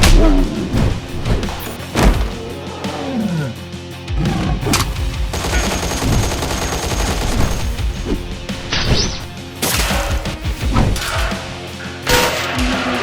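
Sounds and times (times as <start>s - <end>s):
rapid gunfire: 4.7s - 8.6s.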